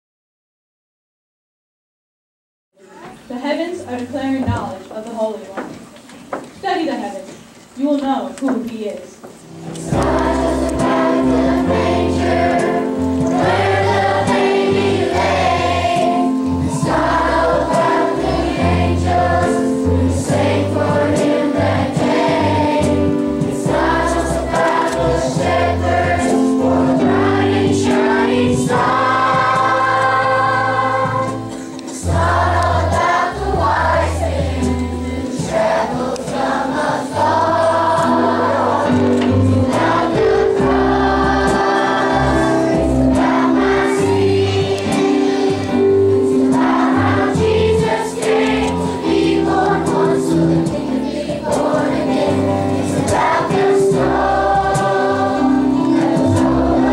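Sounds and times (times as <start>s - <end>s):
instrumental accompaniment: 7.4s - 56.9s
choir singing: 9.7s - 56.9s.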